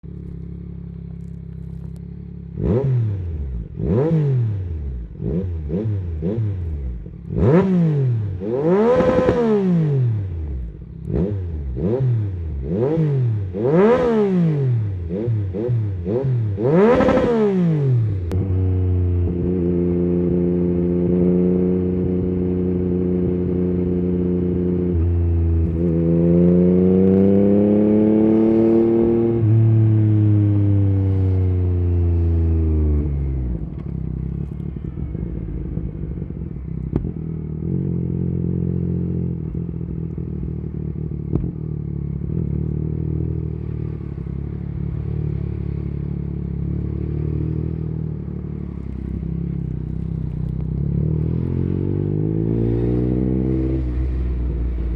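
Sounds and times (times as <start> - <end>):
motorcycle engine revving: 0.0 - 54.9
exhaust pops: 33.6 - 37.3, 41.2 - 42.6.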